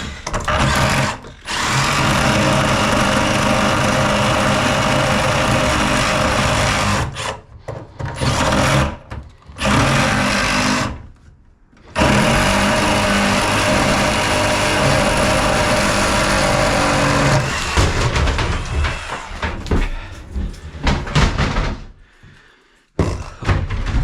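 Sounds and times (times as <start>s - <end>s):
electric power tool motor running: 12.0s - 17.9s.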